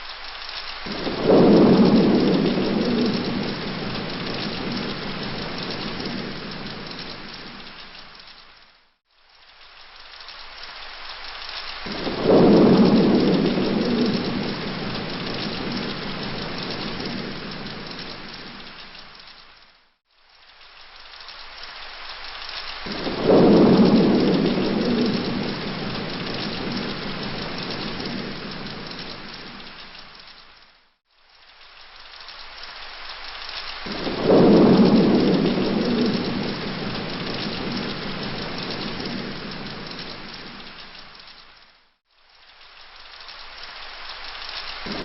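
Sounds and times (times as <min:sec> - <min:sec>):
steady rain: 0:00.0 - 0:45.0
thunderclap rumbling: 0:00.8 - 0:08.2, 0:11.8 - 0:19.6, 0:22.7 - 0:30.4, 0:33.7 - 0:41.6, 0:44.7 - 0:45.0.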